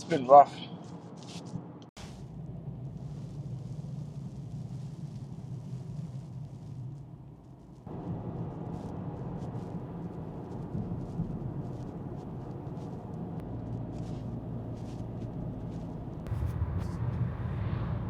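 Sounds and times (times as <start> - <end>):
car engine and road noise: 0.7 - 18.0.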